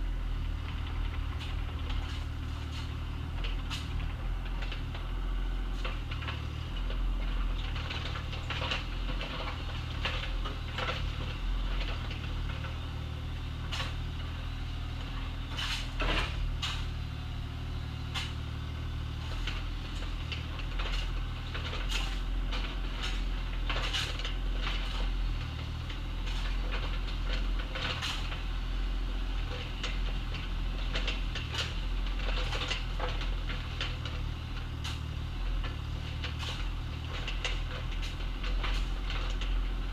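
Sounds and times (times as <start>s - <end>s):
diesel engine running: 0.0s - 39.9s
bucket clanking and scraping stones: 19.2s - 25.2s, 26.2s - 28.4s, 30.8s - 39.8s.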